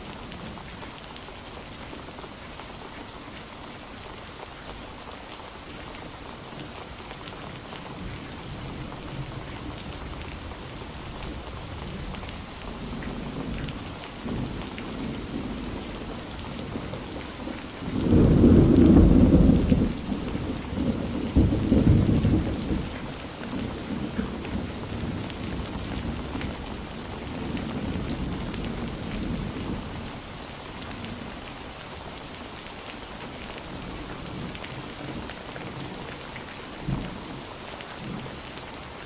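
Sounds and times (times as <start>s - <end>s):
steady rain falling: 0.0s - 39.0s
thunder rumbling: 8.0s - 30.2s.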